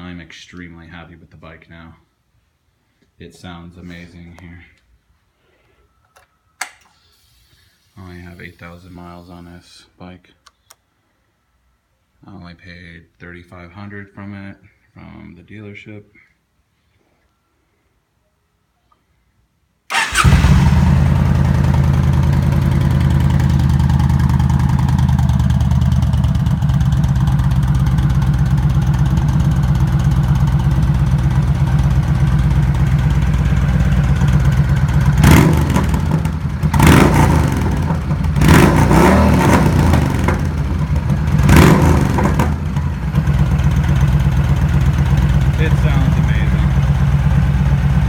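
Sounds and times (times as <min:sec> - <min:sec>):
motorcycle engine idling: 0:19.9 - 0:48.0
motorcycle throttle blips: 0:19.9 - 0:48.0.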